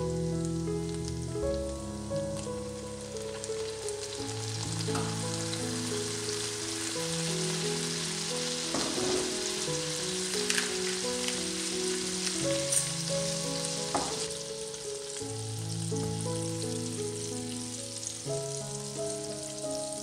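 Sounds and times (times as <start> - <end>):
asparagus sizzling in a frying pan: 0.0 - 20.0
background music with held notes: 0.0 - 20.0
utensils clicking against pan: 10.2 - 13.1.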